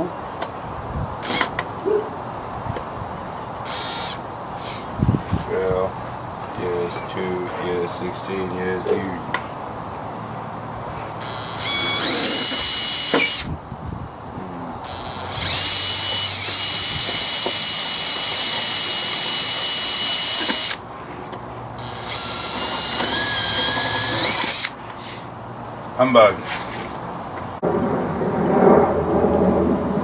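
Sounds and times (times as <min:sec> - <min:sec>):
electric drill whining: 0:01.2 - 0:01.5, 0:03.7 - 0:04.8, 0:11.2 - 0:13.5, 0:14.8 - 0:20.8, 0:21.8 - 0:24.7.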